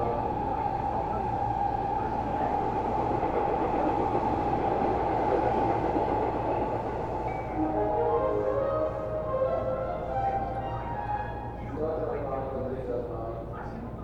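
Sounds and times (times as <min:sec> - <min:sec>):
train wheels rumbling on rail: 0:00.0 - 0:09.3.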